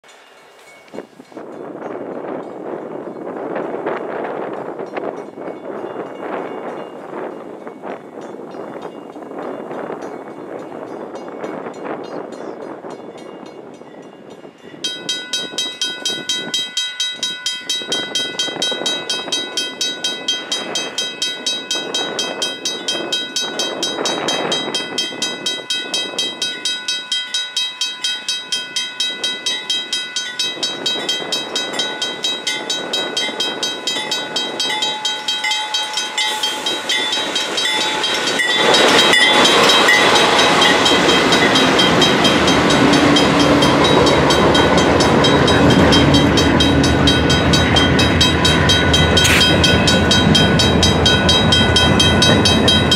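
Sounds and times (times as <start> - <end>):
crossing bell ringing: 0.0 - 52.9
diesel locomotive engines: 0.0 - 52.9
freight cars rolling by: 34.0 - 52.9.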